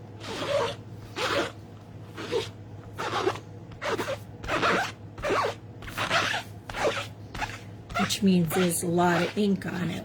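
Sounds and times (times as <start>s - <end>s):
ink pad scuffing rubber stamp: 2.2s - 9.4s.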